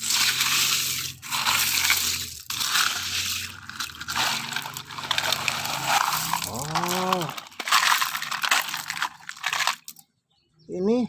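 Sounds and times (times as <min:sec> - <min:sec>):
sand dug and scraped by hand: 0:00.0 - 0:07.4.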